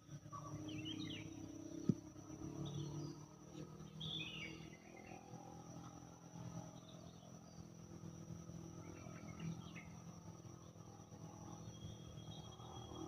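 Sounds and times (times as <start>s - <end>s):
high insect-like buzz: 0.0s - 13.0s
birds chirping: 0.3s - 5.4s, 8.8s - 10.8s.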